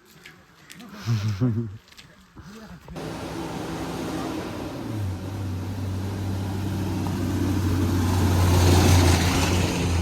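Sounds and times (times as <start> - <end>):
vehicle engine running: 3.0 - 10.0.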